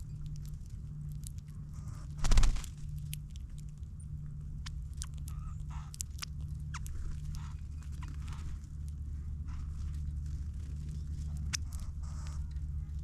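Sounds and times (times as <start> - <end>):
birds pecking and hopping: 0.0 - 13.0
steady low rumble: 0.0 - 13.0
wings fluttering: 1.7 - 3.0, 6.7 - 13.0.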